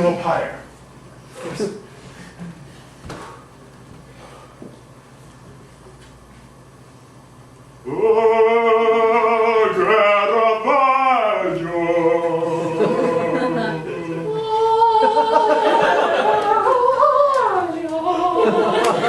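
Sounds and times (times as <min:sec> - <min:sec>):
man singing unaccompanied: 0:07.8 - 0:15.1.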